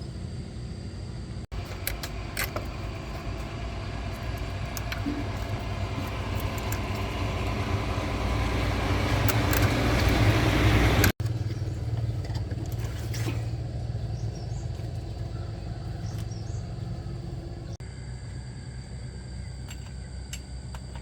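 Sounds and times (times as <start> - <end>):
pickup truck engine running: 1.5 - 17.8.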